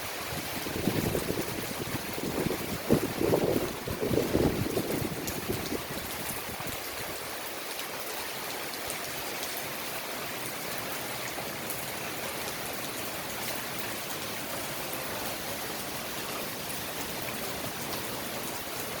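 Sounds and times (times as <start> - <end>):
wind buffeting microphone: 0.2 - 7.0
heavy rain hissing: 9.2 - 19.0.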